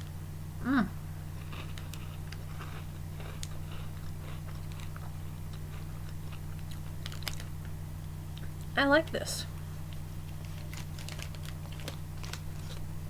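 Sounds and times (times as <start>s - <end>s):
person chewing crunchy wafer: 1.3s - 8.5s, 10.3s - 13.0s.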